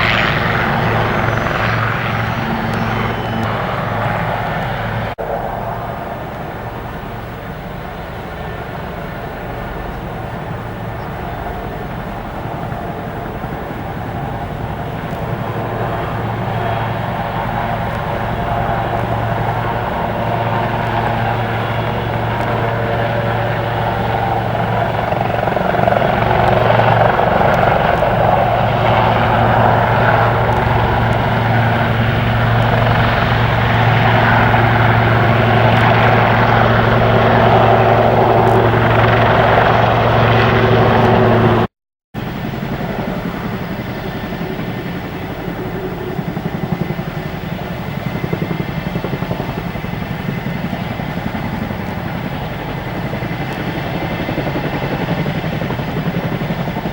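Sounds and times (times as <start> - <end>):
helicopter rotor and turbine: 0.0 - 56.9
low drone: 0.0 - 56.9.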